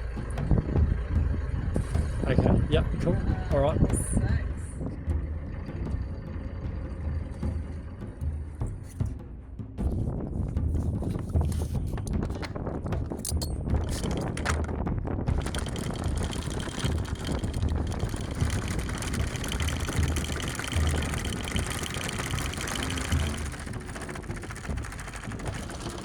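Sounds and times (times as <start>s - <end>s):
boat engine throbbing: 0.0s - 26.0s
fast even rattle: 10.8s - 26.0s.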